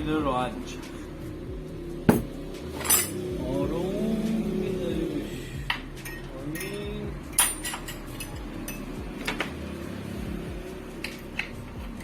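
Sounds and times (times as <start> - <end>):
metallic clinks of tools: 2.1 - 3.2.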